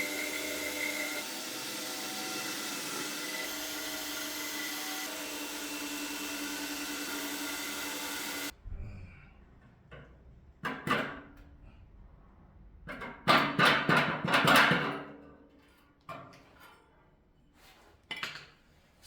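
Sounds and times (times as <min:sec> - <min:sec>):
electric drill boring into metal: 0:00.0 - 0:08.5.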